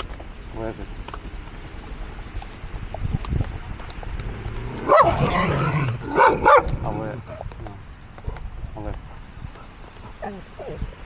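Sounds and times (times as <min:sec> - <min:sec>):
dog barking loudly: 0:04.6 - 0:06.7.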